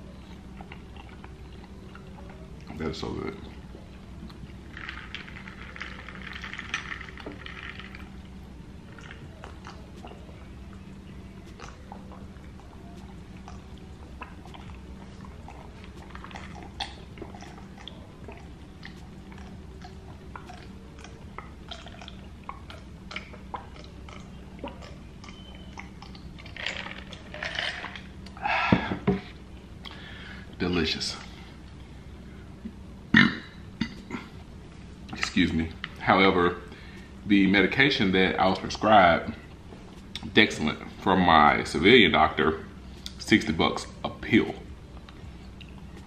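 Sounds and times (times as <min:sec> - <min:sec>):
person chewing food: 0:00.0 - 0:02.8, 0:11.4 - 0:28.9.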